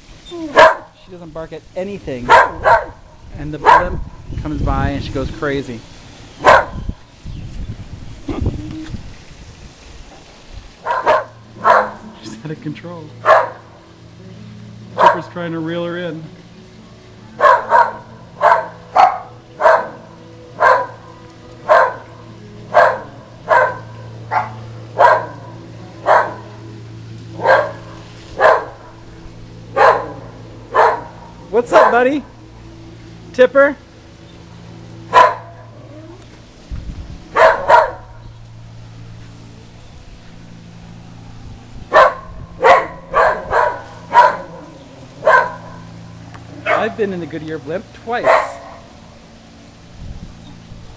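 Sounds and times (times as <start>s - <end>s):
dog barking: 0.5s - 1.0s, 2.2s - 3.0s, 3.6s - 4.0s, 6.4s - 6.9s, 10.8s - 12.1s, 13.2s - 13.7s, 15.0s - 15.3s, 17.4s - 21.0s, 21.6s - 22.1s, 22.7s - 26.5s, 27.4s - 28.9s, 29.7s - 32.0s, 35.1s - 35.7s, 37.4s - 38.2s, 41.9s - 45.9s, 46.6s - 47.0s, 48.2s - 48.9s.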